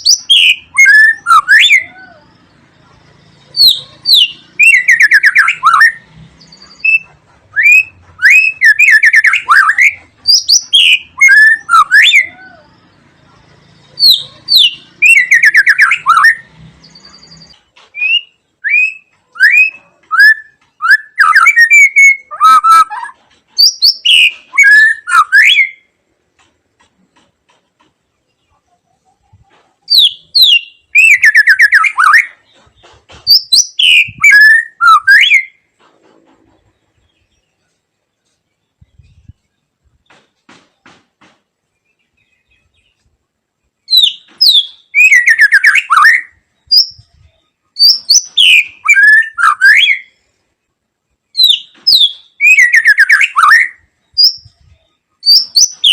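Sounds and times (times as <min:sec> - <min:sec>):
bird singing whistles and trills: 0:00.0 - 0:13.0, 0:13.6 - 0:25.9, 0:29.9 - 0:32.4, 0:33.3 - 0:35.6, 0:43.8 - 0:50.2, 0:51.4 - 0:55.9.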